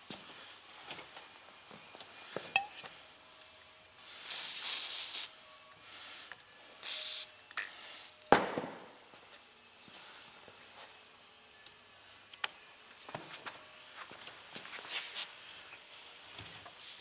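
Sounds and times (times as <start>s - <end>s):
aerosol spray bursts: 4.2s - 5.3s, 6.8s - 7.3s.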